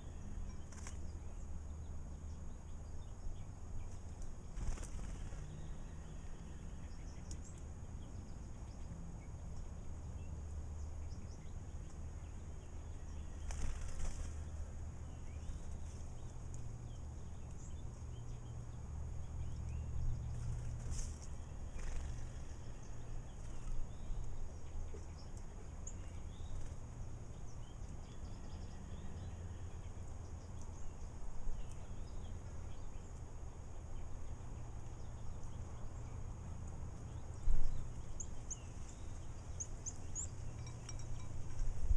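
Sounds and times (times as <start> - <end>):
birds wing-flapping and splashing: 0.6 - 1.0, 3.9 - 5.6, 13.4 - 14.6, 20.3 - 22.5
faint bird chirps: 37.1 - 41.7.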